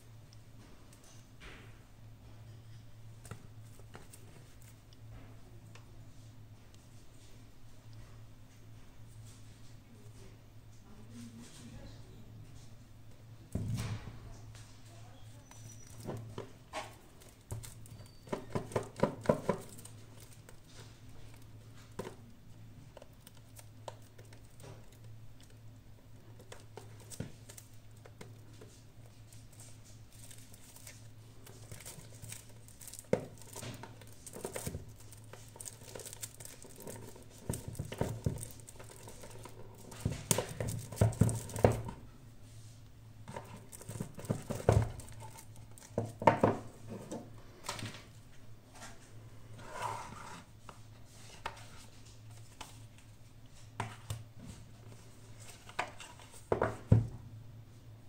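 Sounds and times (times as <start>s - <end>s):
packaging crinkling and rustling: 15.3s - 42.0s, 43.2s - 46.7s.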